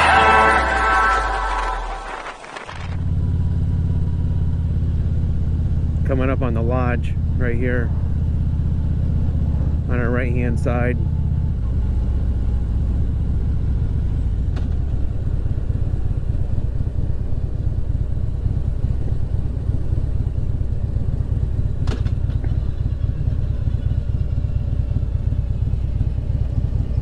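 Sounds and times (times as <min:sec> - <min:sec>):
motorcycle engine cruising: 0:00.0 - 0:27.0.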